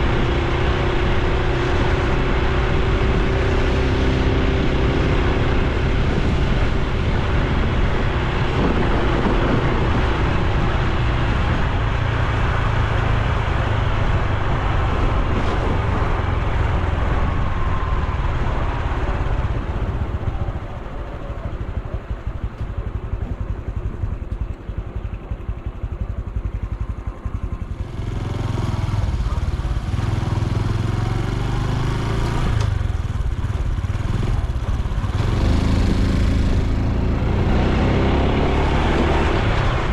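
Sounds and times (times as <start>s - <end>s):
wind noise: 0.0s - 24.8s, 26.8s - 39.9s
motorcycle engine running: 0.0s - 39.9s
road noise: 0.0s - 39.9s.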